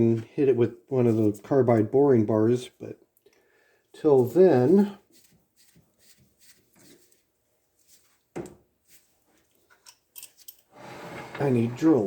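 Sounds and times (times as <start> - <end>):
tools clicking and knocking: 9.5 - 10.7.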